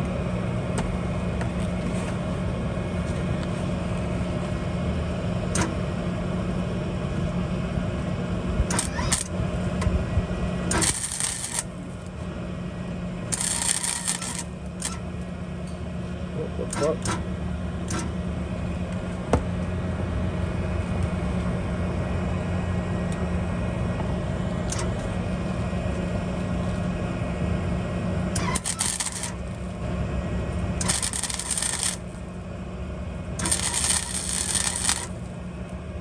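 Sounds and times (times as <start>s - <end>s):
electrical hum: 0.0s - 36.0s
welding arc crackle: 8.7s - 9.7s, 10.6s - 12.3s, 13.3s - 15.1s, 28.4s - 30.0s, 30.8s - 32.4s, 33.4s - 35.6s.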